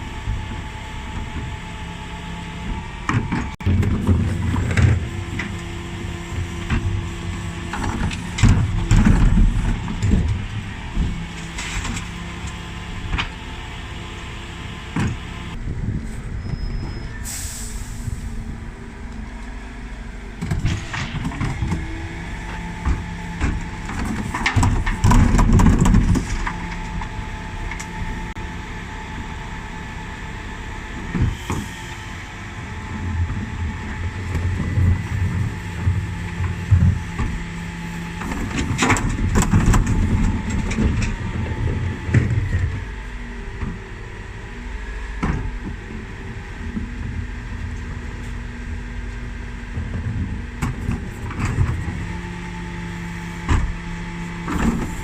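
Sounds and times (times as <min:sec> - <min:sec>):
bin lorry engine running: 0:00.0 - 0:55.0
air hiss: 0:17.2 - 0:18.4
bin lift knocks and clatter: 0:20.4 - 0:27.2.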